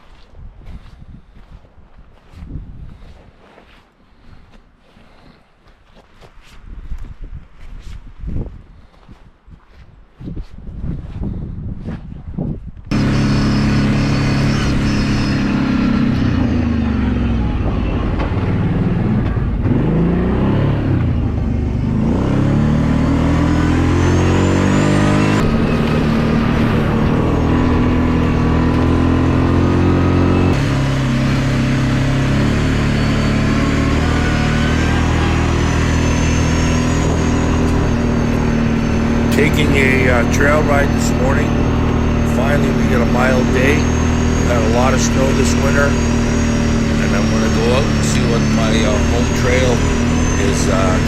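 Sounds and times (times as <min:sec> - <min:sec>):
atv engine running: 0:12.9 - 0:51.0.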